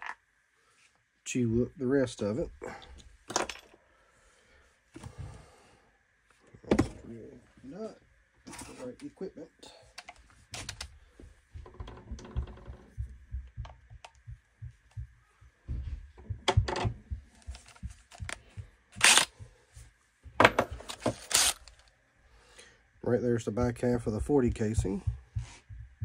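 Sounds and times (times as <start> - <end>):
tools clicking and tapping: 11.6 - 14.2, 16.2 - 19.4.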